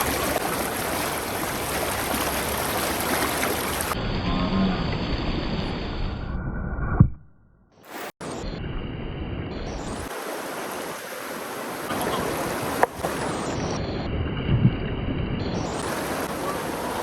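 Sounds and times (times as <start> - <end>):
river water rushing: 0.0 - 4.0, 10.0 - 13.8, 15.8 - 17.0.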